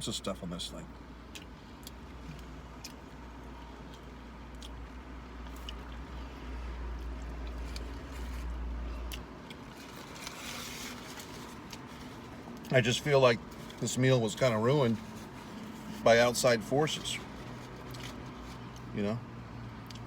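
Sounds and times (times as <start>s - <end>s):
low steady rumble: 0.0s - 20.0s
person chewing a burger: 1.2s - 12.8s, 17.2s - 18.9s, 19.7s - 20.0s.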